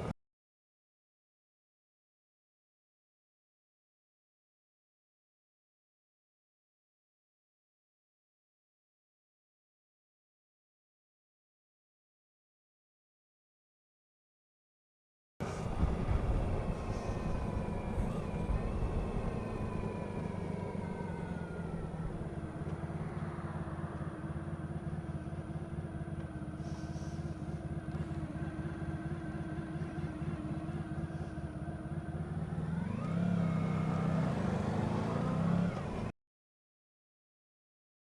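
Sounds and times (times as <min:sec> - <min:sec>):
motorcycle engine running: 0:15.4 - 0:36.1.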